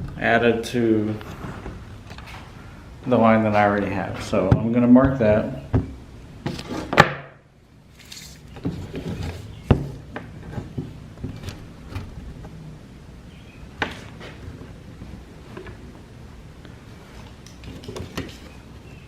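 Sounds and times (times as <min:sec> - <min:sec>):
tools handling on plywood: 0:08.0 - 0:12.6, 0:17.2 - 0:18.7.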